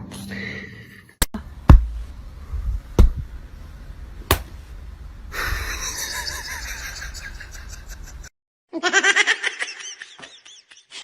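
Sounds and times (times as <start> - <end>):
sharp knocks: 4.3 - 4.6.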